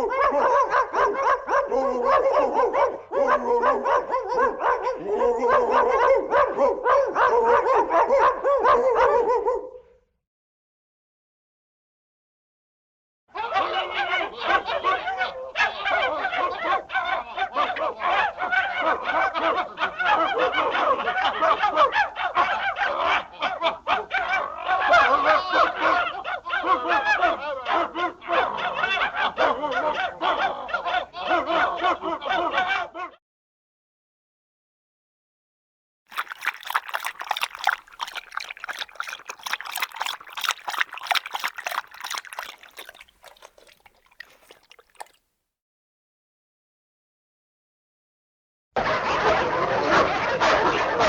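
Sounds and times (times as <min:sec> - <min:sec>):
animals yelping in chorus: 0:36.1 - 0:45.2
dog lapping water: 0:36.1 - 0:45.2.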